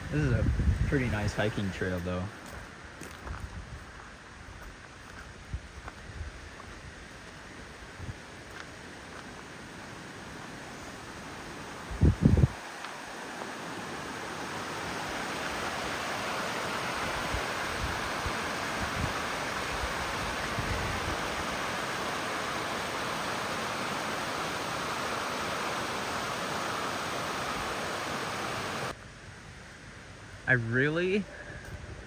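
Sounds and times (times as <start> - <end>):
water rushing over rapids: 9.2 - 29.0.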